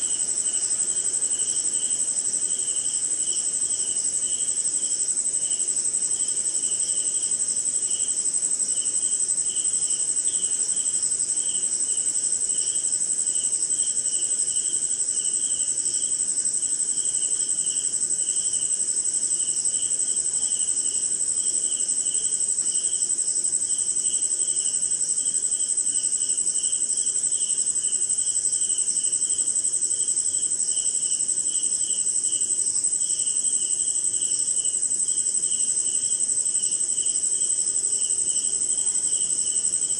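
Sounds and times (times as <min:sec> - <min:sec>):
high-pitched insect trill: 0:00.0 - 0:39.9
low pulsing insect chirp: 0:00.0 - 0:39.9.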